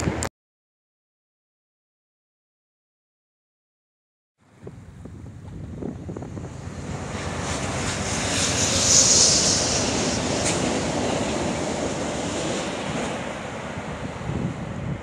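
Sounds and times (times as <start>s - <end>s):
train wheels rushing on rail: 5.4s - 15.0s
high hiss: 7.3s - 11.5s.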